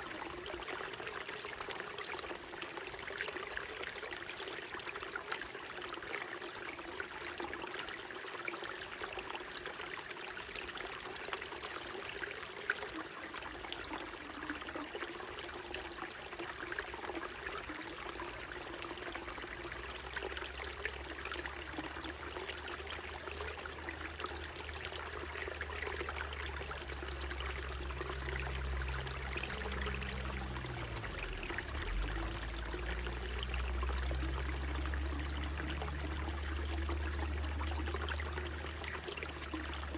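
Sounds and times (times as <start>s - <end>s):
running stream water: 0.0s - 39.9s
low rumble with faint hum: 19.2s - 39.9s.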